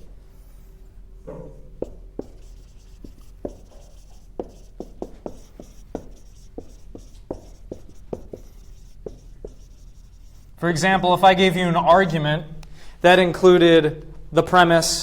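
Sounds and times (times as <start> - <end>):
chalk tapping on a board: 1.8 - 10.5.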